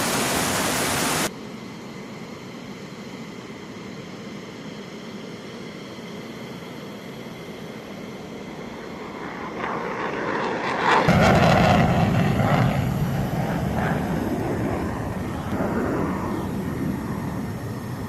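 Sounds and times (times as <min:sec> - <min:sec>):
fighter jet engine roar: 0:00.0 - 0:18.0.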